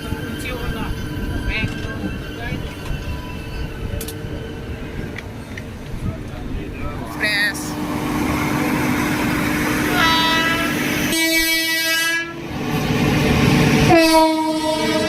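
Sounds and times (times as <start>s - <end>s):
train running noise: 0.0s - 15.0s
train horn blowing: 9.7s - 12.4s, 13.8s - 15.0s.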